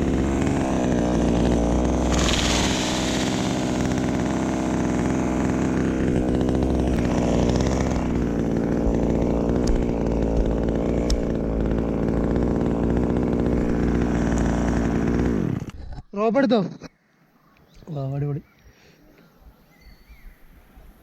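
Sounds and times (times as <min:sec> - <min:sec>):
chainsaw engine running: 0:00.0 - 0:16.0.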